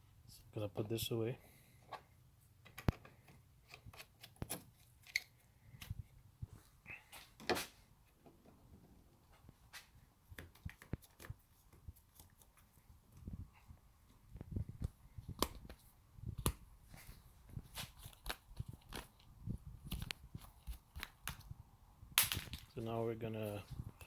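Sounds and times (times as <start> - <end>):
clicks and taps of objects handled: 2.6 - 6.0, 10.3 - 13.3, 19.9 - 21.5.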